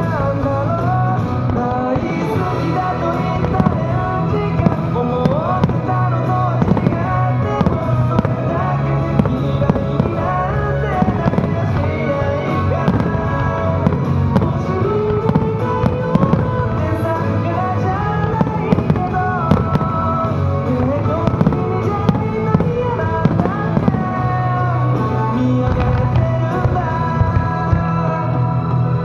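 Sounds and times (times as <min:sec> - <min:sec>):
fireworks bangs and crackles: 0:00.0 - 0:28.2
show music with bass: 0:00.0 - 0:29.0.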